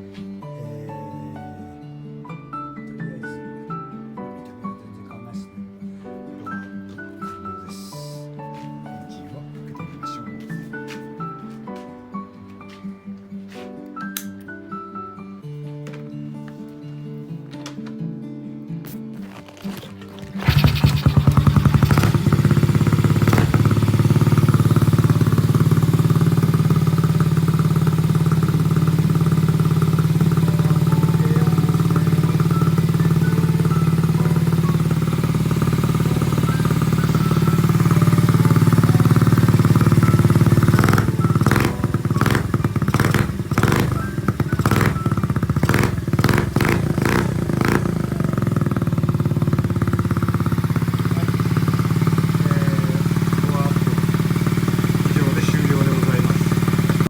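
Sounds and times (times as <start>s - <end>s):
small engine running: 19.2s - 57.0s.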